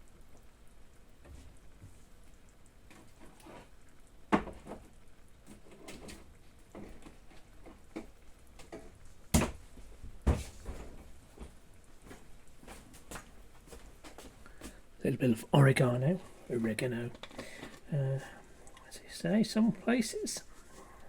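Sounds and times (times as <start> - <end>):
quiet clicks and handling sounds: 15.6 - 21.0.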